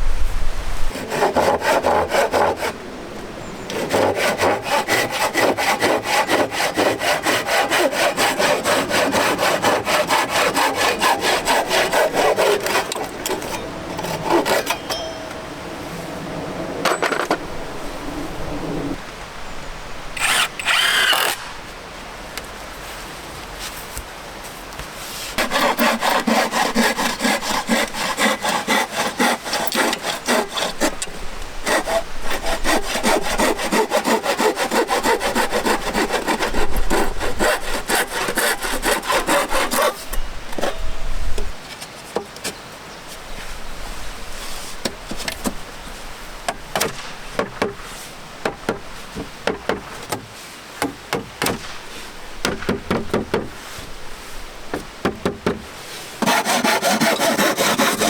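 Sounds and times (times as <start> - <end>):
saw cutting through wood: 0.9 - 2.8, 3.7 - 14.9, 20.2 - 21.4, 25.4 - 40.8, 56.2 - 58.0.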